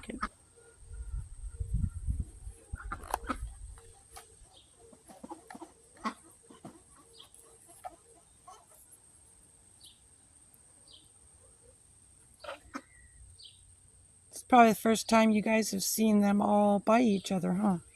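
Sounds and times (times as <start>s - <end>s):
microphone handling rumble: 0.0s - 4.3s
chickens clucking softly: 0.0s - 10.0s, 10.9s - 13.1s.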